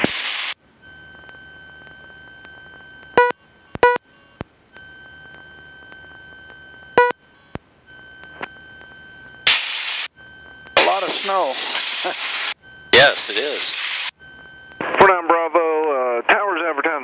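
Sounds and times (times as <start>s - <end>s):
faint electronic whine: 0.0s - 17.0s
short beeps: 0.8s - 9.5s, 10.1s - 11.6s, 12.5s - 15.1s.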